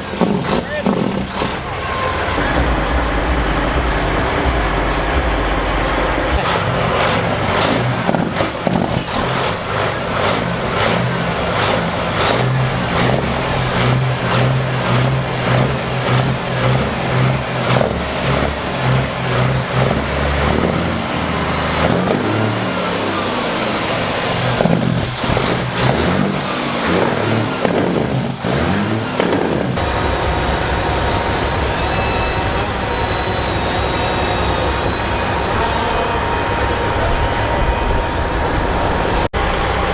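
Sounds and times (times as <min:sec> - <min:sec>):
diesel truck engines revving: 0:00.0 - 0:39.9.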